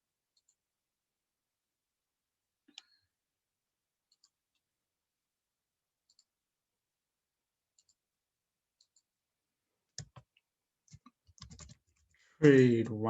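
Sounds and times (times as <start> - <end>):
computer mouse clicks: 4.1 - 4.4, 6.1 - 6.3, 7.8 - 8.0, 8.8 - 9.1, 9.9 - 11.9.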